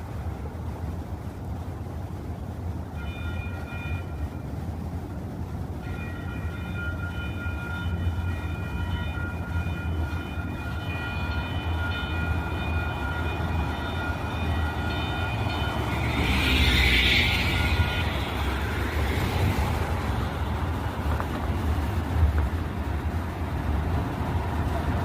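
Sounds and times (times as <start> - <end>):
train rumbling: 0.0 - 25.0
high-pitched train whine: 2.7 - 25.0.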